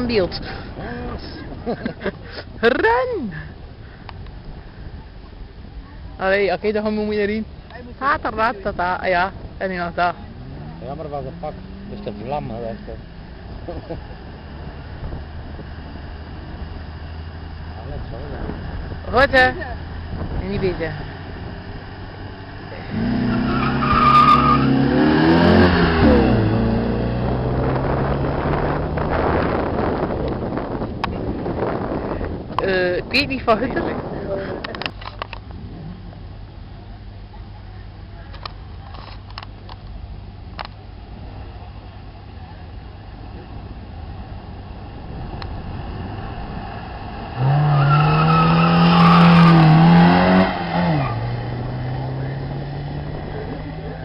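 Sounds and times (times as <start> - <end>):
car engine revving: 9.1 - 32.1, 43.0 - 54.0
tyre squeal: 23.2 - 24.9, 47.4 - 51.4.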